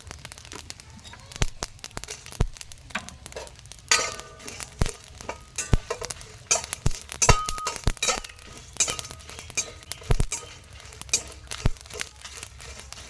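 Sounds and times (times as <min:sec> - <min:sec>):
kitchenware clinking: 0:03.0 - 0:13.0.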